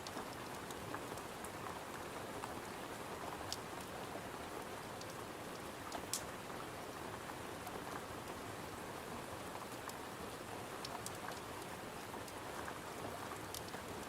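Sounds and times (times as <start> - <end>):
rain pattering on a window: 0.0 - 14.0.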